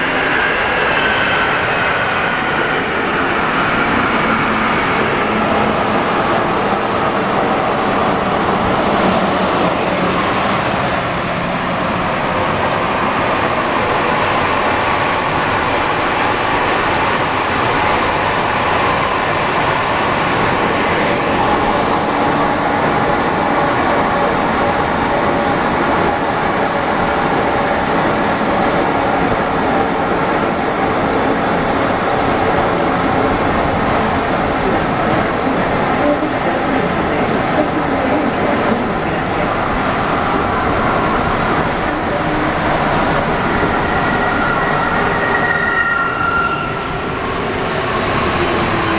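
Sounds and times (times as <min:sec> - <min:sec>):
metro train rolling noise: 0:00.0 - 0:48.9.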